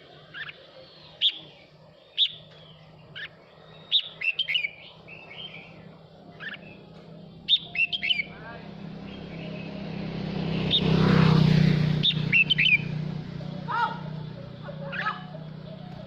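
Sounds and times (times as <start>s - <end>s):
bird singing whistled phrases: 0.3s - 5.8s, 7.5s - 8.4s.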